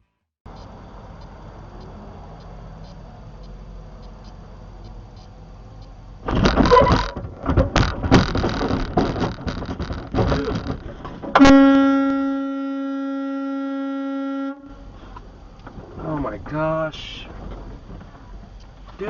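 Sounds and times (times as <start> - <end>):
clattering road noise: 0.5 - 13.4, 14.6 - 19.0
vehicle horn blast: 11.4 - 14.9.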